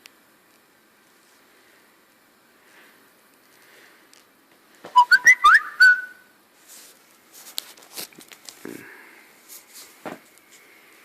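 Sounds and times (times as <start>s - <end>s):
rising whistled note: 5.0s - 6.2s.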